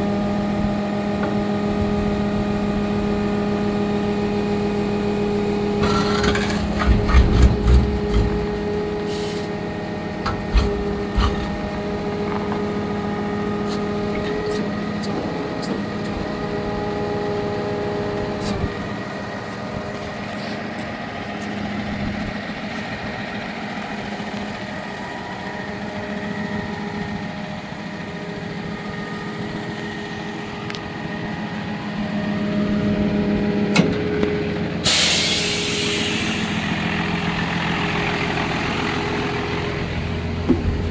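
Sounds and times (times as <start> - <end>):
diesel truck idling: 0.0 - 40.9
low engine knocks: 5.8 - 9.1, 10.0 - 13.1, 40.3 - 40.9
short hiss of air: 34.9 - 36.7.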